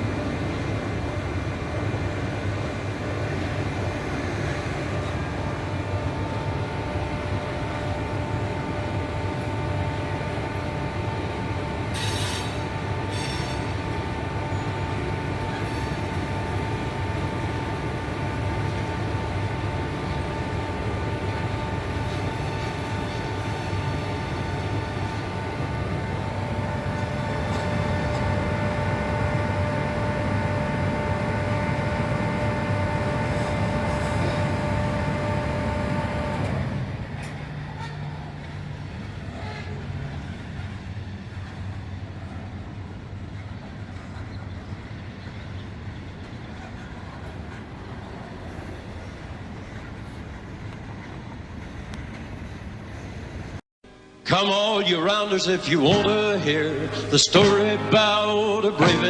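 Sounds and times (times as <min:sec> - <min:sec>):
train wheels rumbling on rails: 0:00.0 - 0:53.6
hiss burst: 0:11.9 - 0:13.7
faint squeal: 0:11.9 - 0:13.8.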